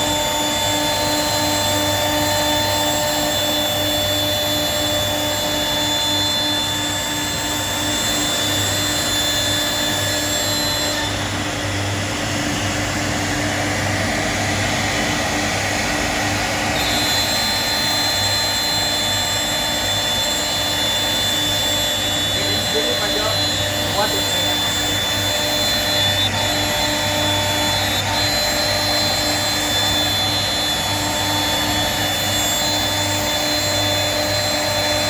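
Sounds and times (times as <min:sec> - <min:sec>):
cnc router spindle whine: 0:00.0 - 0:35.0
harsh cutting hiss: 0:16.8 - 0:35.0.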